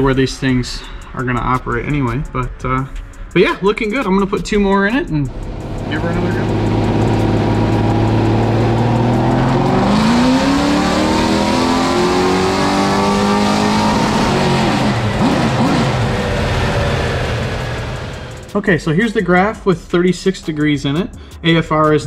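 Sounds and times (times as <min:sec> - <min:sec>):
car engine revving on dyno: 0:05.3 - 0:18.5.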